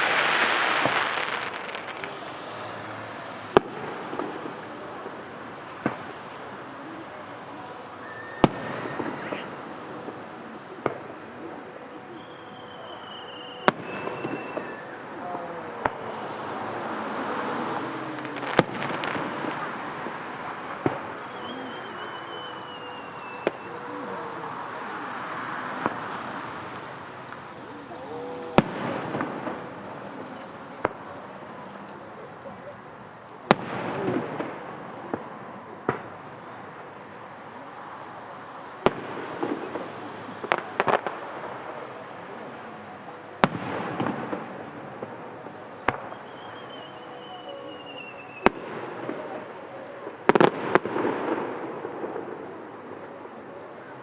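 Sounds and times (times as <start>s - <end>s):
firework shells bursting: 0.0s - 6.8s
crackling pops: 0.0s - 54.0s
crowd noise: 0.0s - 54.0s
firework bangs: 0.0s - 54.0s
firework whistle sliding down: 8.0s - 9.6s, 12.1s - 24.4s, 45.9s - 49.6s.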